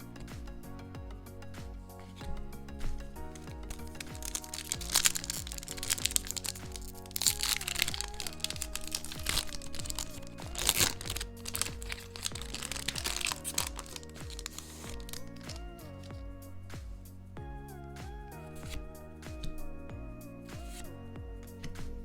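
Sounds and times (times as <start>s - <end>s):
background music: 0.0s - 22.0s
packaging crinkling: 3.4s - 16.2s.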